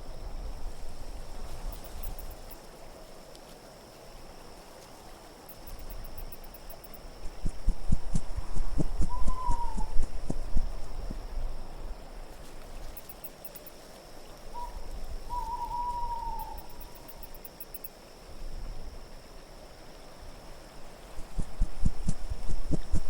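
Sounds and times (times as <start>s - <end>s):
wind hiss: 0.0s - 23.0s
soft low thumps: 7.2s - 11.2s, 21.2s - 23.0s
owl hooting: 8.8s - 10.4s, 14.5s - 17.1s
faint high tinkling: 12.8s - 13.8s.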